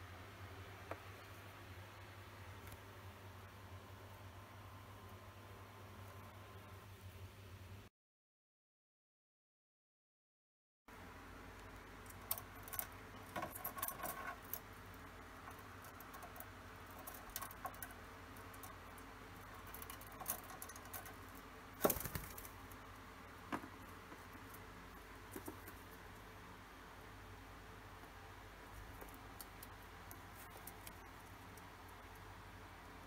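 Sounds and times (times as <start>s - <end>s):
bird feet and beak tapping: 11.5s - 26.3s, 28.0s - 32.2s.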